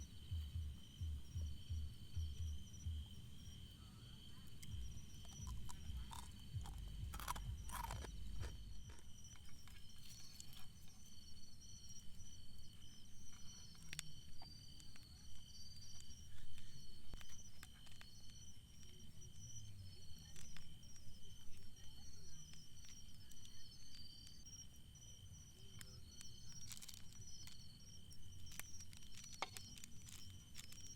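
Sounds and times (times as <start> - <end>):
crickets chirring: 0.0 - 30.9
low outdoor rumble: 4.0 - 9.2.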